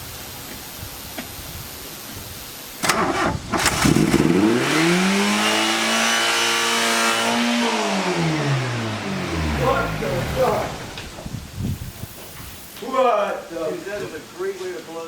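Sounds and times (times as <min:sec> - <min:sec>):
car engine cranking and revving: 0:02.8 - 0:11.4.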